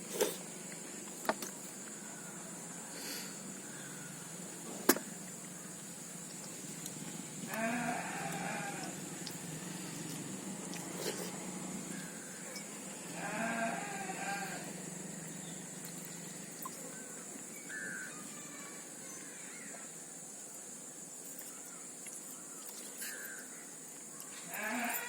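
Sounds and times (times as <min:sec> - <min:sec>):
steady background hiss: 0:00.0 - 0:25.0
livestock bleating: 0:07.5 - 0:08.9, 0:13.2 - 0:14.7, 0:24.5 - 0:25.0.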